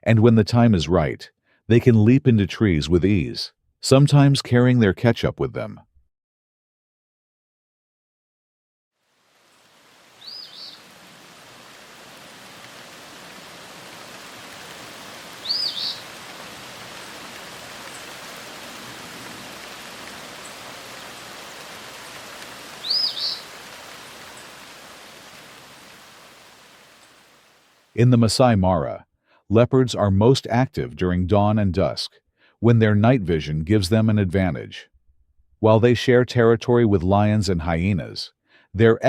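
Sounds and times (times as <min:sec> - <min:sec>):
outdoor ambience hiss: 0:09.0 - 0:28.5
bird chirping: 0:10.2 - 0:10.9, 0:15.3 - 0:16.2, 0:22.7 - 0:23.5.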